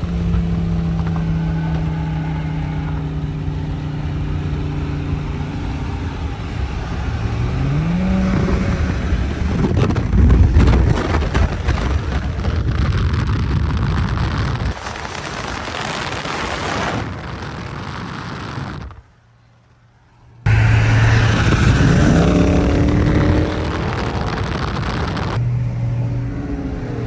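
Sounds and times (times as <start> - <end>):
car engine revving and accelerating: 0.0 - 10.0, 20.5 - 27.0.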